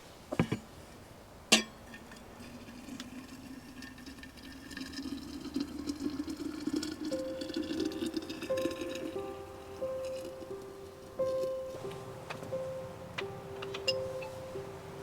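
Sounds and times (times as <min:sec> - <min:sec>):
liquid pouring into container: 0:02.4 - 0:09.3.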